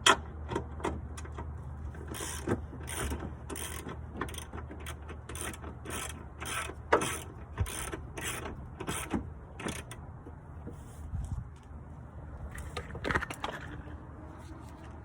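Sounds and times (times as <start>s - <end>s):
ratchet wrench clicking: 2.0s - 10.0s.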